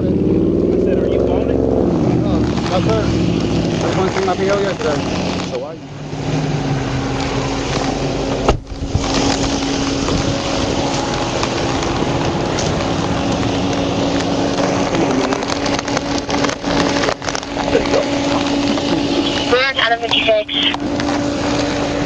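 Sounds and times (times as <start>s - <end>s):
vehicle engine running: 0.0s - 22.0s
wind on microphone: 6.9s - 19.6s.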